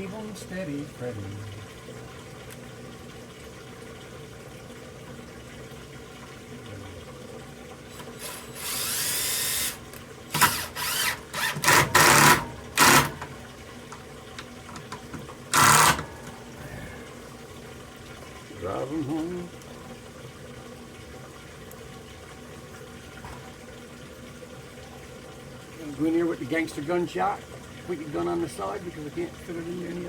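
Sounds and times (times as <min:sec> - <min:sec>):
cordless drill driving screws: 0:08.0 - 0:13.2, 0:15.6 - 0:16.0.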